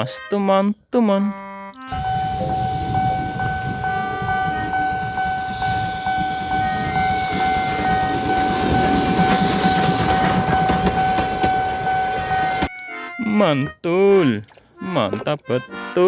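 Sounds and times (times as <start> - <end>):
steady high tone: 0.0 - 14.3
train rumbling: 1.9 - 12.7.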